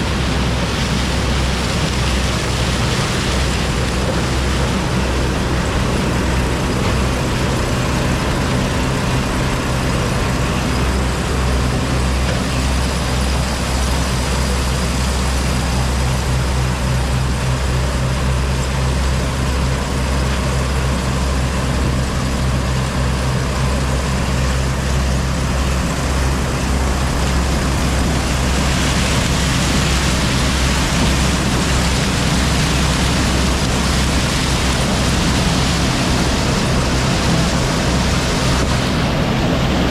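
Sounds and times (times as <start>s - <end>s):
broad rushing noise: 0.0s - 39.9s
diesel engine drone: 0.0s - 39.9s.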